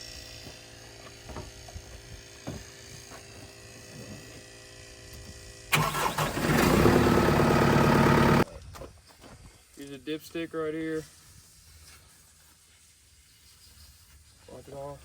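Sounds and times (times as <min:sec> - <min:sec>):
tractor diesel engine starting: 0:05.7 - 0:08.4.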